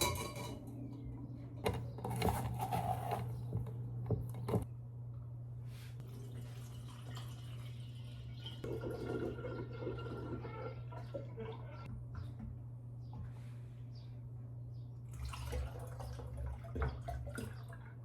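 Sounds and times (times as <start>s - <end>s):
kitchen knocks and clinks: 0.0s - 0.8s
liquid dripping and trickling: 15.1s - 18.0s.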